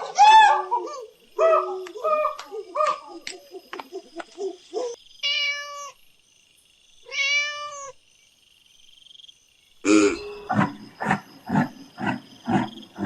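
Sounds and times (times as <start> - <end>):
cat meowing: 5.2 - 6.0, 7.1 - 8.0
low-pitched animal call: 9.9 - 13.0.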